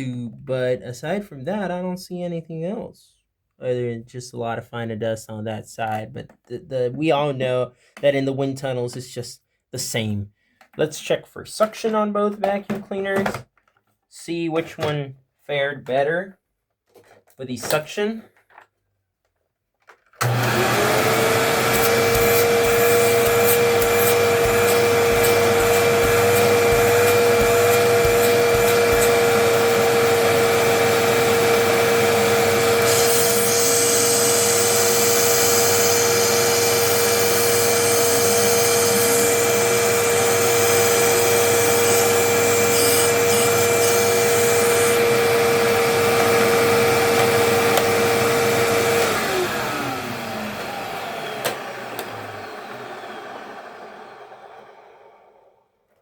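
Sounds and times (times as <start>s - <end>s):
vacuum cleaner motor running: 20.2s - 55.6s.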